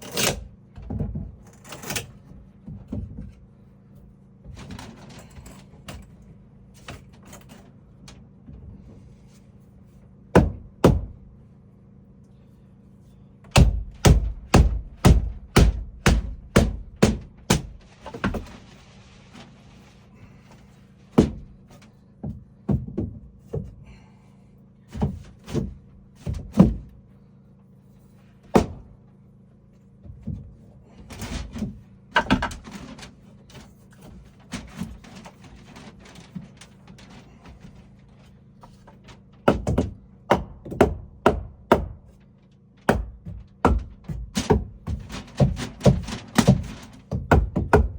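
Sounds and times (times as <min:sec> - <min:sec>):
hammering on wood: 0:10.3 - 0:11.2, 0:13.5 - 0:18.5, 0:21.2 - 0:21.6, 0:22.2 - 0:23.7, 0:25.0 - 0:26.9, 0:28.5 - 0:28.9, 0:39.4 - 0:42.1, 0:42.9 - 0:47.9.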